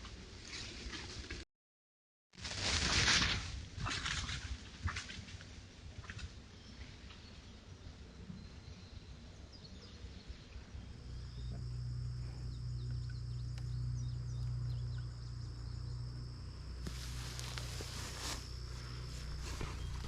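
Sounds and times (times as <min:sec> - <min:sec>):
low even hum: 0:06.6 - 0:20.0
insects trilling: 0:10.6 - 0:20.0
faint bird chirps: 0:17.0 - 0:20.0.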